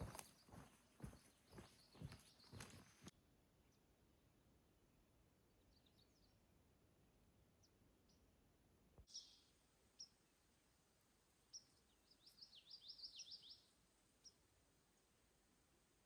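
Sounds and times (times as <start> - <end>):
songbird chirps: 0.0 - 4.0, 5.4 - 6.6, 9.0 - 15.4.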